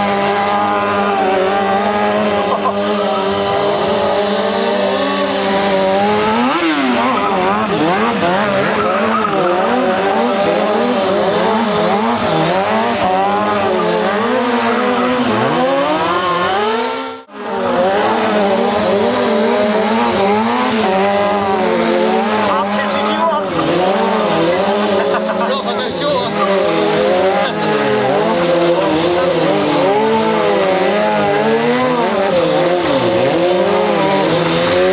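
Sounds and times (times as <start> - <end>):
motorcycle engine revving: 0.0 - 34.9
tyre squeal: 6.4 - 12.4.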